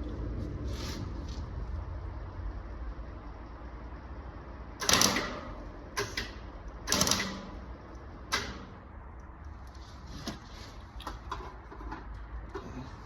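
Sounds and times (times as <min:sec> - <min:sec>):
welder bursts: 0:04.8 - 0:07.7.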